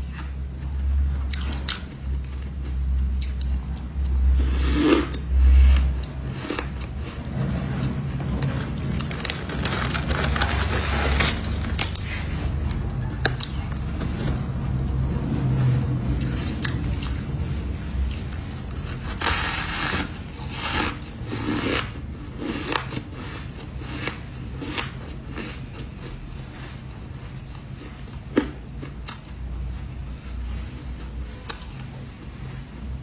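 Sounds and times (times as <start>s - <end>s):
low rumble: 2.8s - 21.4s.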